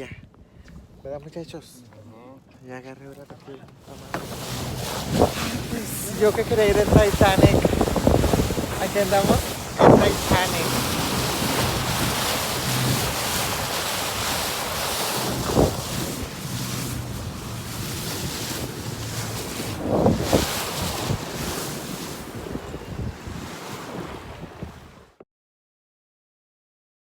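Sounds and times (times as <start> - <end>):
rushing water: 3.8 - 25.1
wind buffeting microphone: 3.8 - 25.1.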